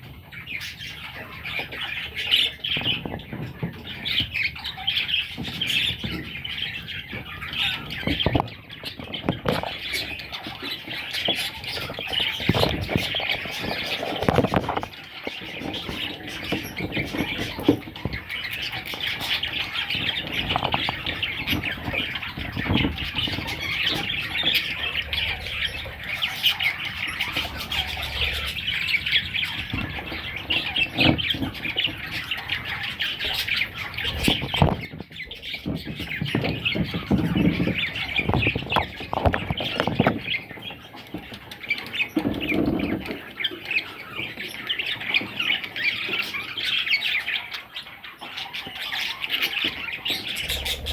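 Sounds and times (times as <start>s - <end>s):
chicks squawking begging calls: 0.0s - 50.9s.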